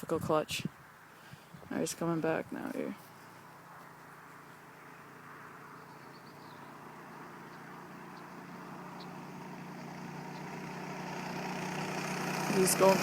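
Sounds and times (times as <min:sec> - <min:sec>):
mini bike engine running: 0:06.4 - 0:13.0.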